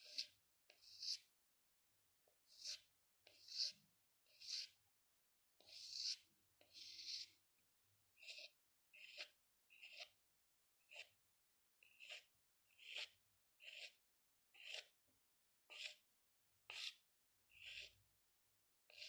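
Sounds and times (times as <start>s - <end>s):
pencil scratching on paper: 0.0s - 1.4s, 2.4s - 4.8s, 5.6s - 7.5s, 8.1s - 11.2s, 11.8s - 15.0s, 15.7s - 18.1s.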